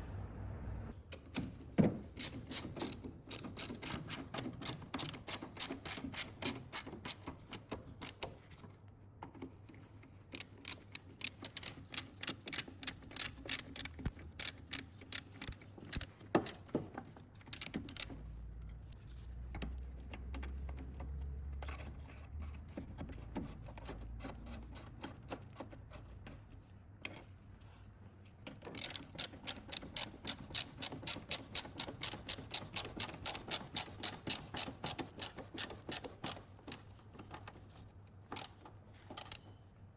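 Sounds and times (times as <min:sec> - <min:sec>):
low rumble: 0:00.0 - 0:01.0
ratchet wrench clicking: 0:02.2 - 0:08.2, 0:10.3 - 0:16.6, 0:17.5 - 0:18.1, 0:28.8 - 0:36.8, 0:38.4 - 0:39.4.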